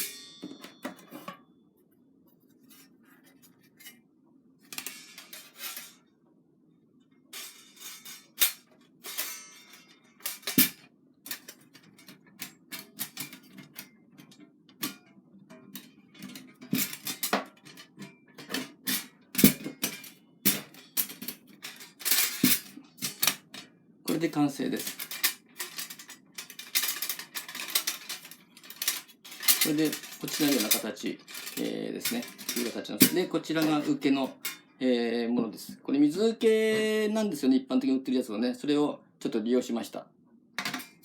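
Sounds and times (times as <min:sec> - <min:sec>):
steel plates clinking and clanking: 0:04.7 - 0:06.0, 0:07.4 - 0:34.8, 0:40.6 - 0:41.0.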